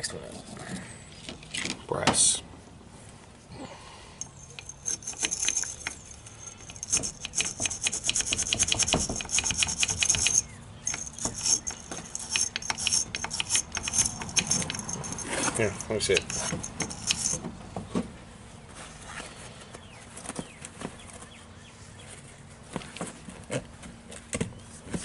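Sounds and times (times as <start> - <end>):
wire brush scrubbing metal: 4.2 - 17.4.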